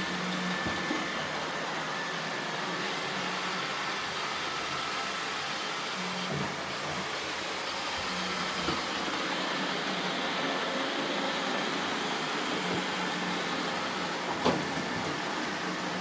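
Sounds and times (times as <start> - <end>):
robot vacuums whirring: 0.0 - 16.0.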